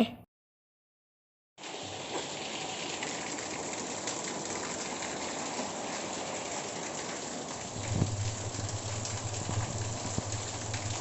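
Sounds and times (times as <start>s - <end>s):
heavy rain falling: 1.6s - 11.0s
rain drop ticks: 7.8s - 11.0s.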